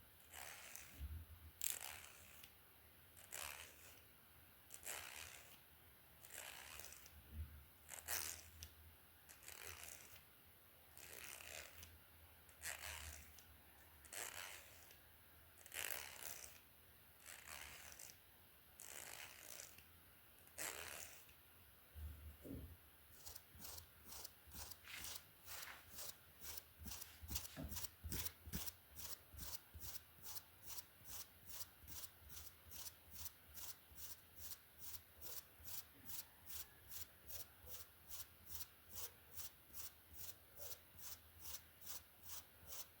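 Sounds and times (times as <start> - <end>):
hair being brushed: 23.2 - 42.9.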